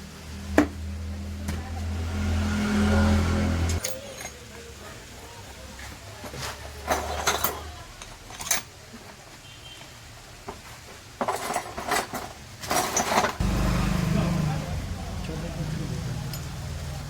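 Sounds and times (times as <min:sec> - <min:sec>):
metal tools clinking: 0:03.7 - 0:04.5, 0:06.8 - 0:08.7, 0:11.2 - 0:13.4, 0:16.2 - 0:16.7.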